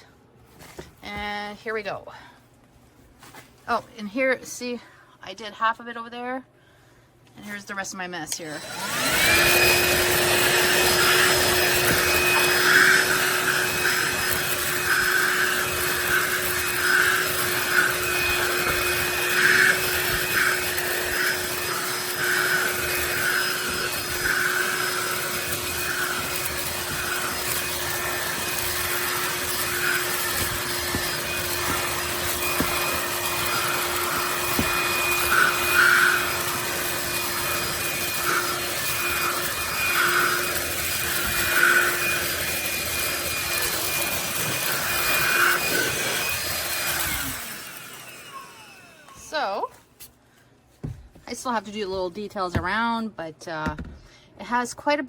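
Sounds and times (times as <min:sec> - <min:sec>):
handheld vacuum motor whine: 0:08.4 - 0:49.8.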